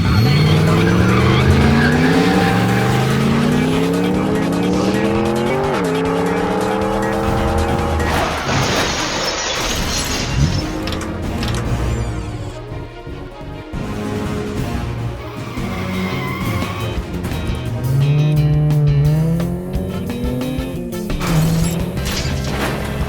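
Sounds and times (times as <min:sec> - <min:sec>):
race car engine accelerating: 0:00.0 - 0:09.6, 0:14.0 - 0:23.0
tyres screeching: 0:00.0 - 0:12.5, 0:15.2 - 0:23.0.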